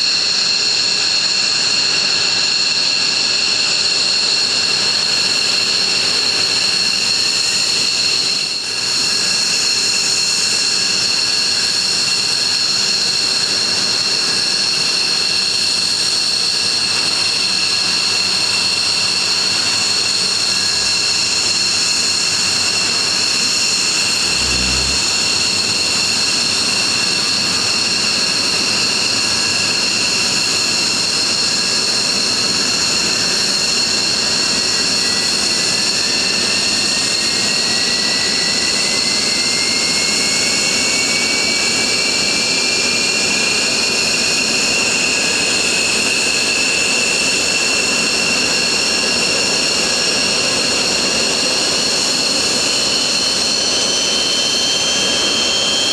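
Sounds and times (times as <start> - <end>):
jet engines whining: 11.6 - 46.7, 47.3 - 55.9.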